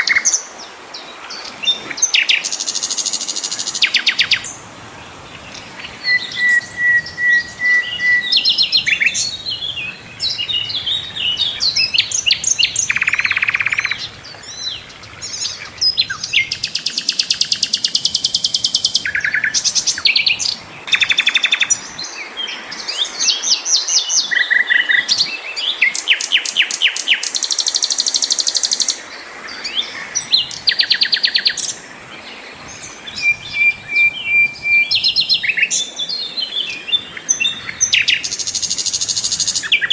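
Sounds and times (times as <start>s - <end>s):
bird singing trills and whistles: 5.5s - 29.0s, 32.8s - 39.9s.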